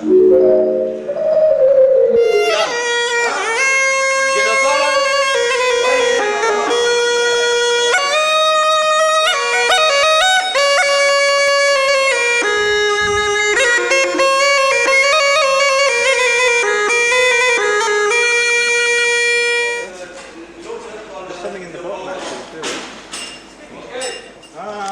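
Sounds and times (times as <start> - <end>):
hurdy-gurdy melody over drone: 0.0 - 19.9.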